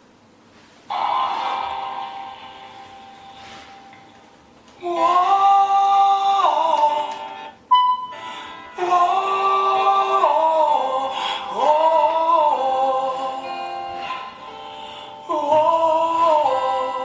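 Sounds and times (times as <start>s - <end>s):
music with long sung notes: 4.8s - 17.0s
short tone: 7.7s - 8.2s.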